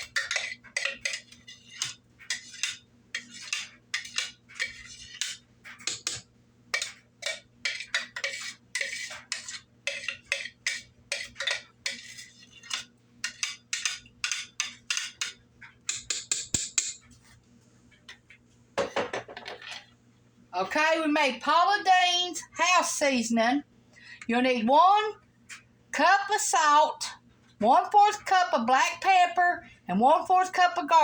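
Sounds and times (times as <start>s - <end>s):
spoon scraping a container: 0.0s - 6.2s, 6.8s - 16.1s.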